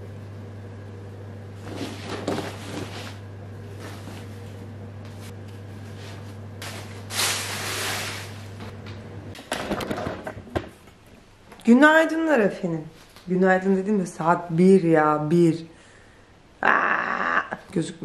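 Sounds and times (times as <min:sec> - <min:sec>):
steady low hum: 0:00.0 - 0:11.5
household handling scrapes and knocks: 0:01.6 - 0:03.2.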